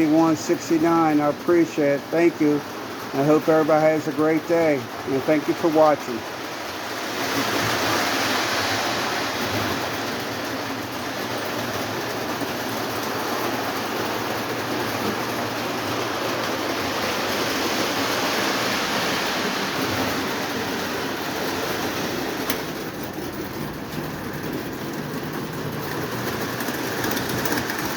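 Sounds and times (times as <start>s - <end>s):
model train whirring on track: 0.0s - 27.9s.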